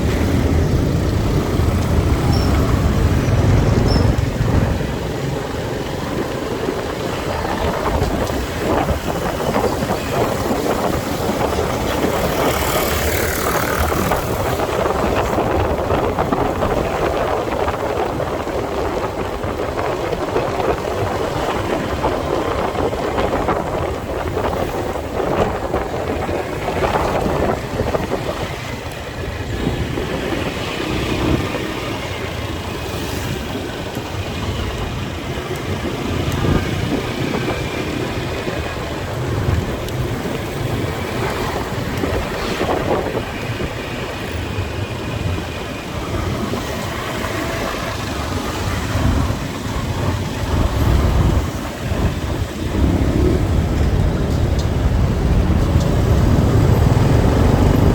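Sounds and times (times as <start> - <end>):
vehicles passing: 0.0 - 57.9
wind noise on microphone: 0.0 - 57.9
motorcycle engine running: 10.9 - 15.1.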